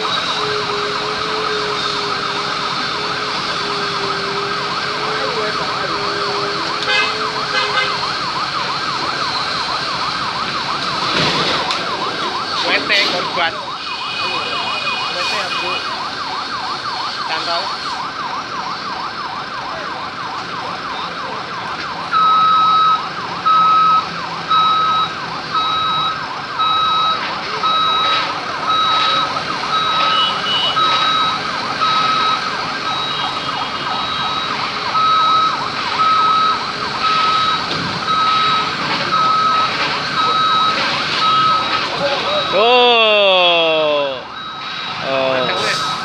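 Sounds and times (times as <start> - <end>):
electronic warning beeps: 0.0 - 18.0, 20.8 - 43.0, 44.3 - 46.0
warbling emergency siren: 0.0 - 46.0.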